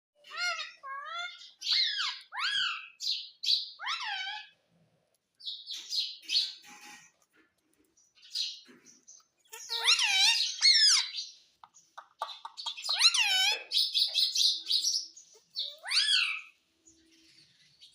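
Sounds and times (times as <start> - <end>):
parrot squawking and chirping: 0.2 - 4.6, 9.4 - 16.6.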